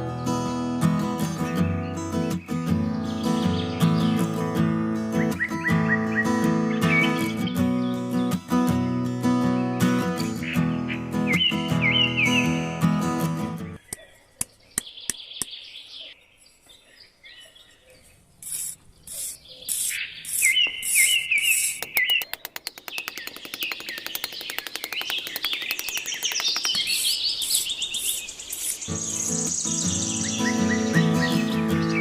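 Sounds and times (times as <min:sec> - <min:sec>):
birds chirping: 0:00.0 - 0:32.0
rapid clicking trill: 0:21.5 - 0:27.3.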